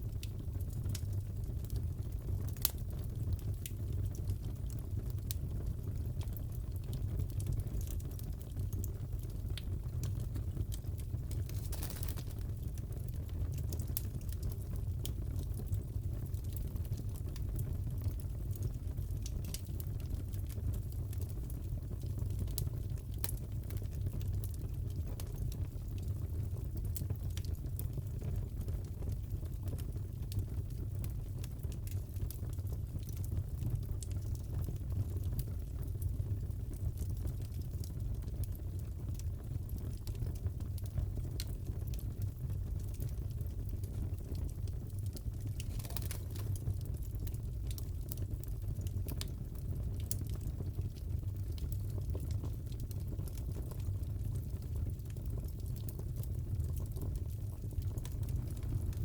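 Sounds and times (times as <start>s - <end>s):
low rumble of flames: 0.0s - 59.0s
fireplace crackling: 2.4s - 5.4s, 10.0s - 15.8s, 30.7s - 59.0s.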